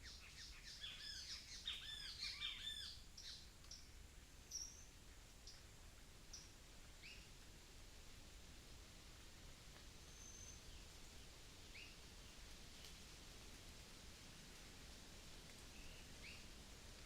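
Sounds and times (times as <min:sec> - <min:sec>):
small birds chirping: 0:00.0 - 0:05.7.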